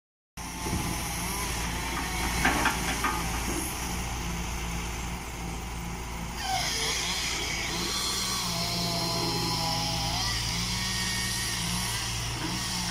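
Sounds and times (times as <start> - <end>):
excavator diesel engine under load: 0.4 - 12.9
hydraulic whine: 0.4 - 12.9.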